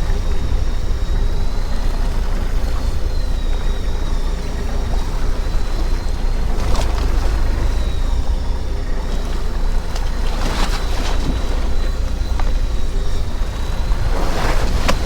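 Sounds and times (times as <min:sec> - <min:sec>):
boat engine low rumble: 0:00.0 - 0:15.0
faint high whine: 0:00.0 - 0:15.0.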